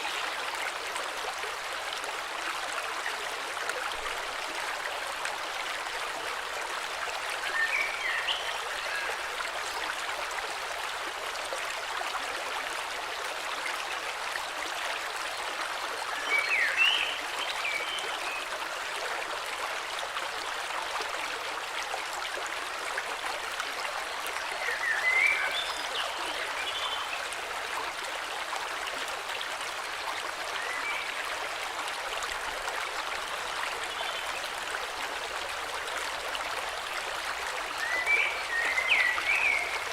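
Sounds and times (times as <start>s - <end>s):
river water rushing: 31.9s - 39.9s.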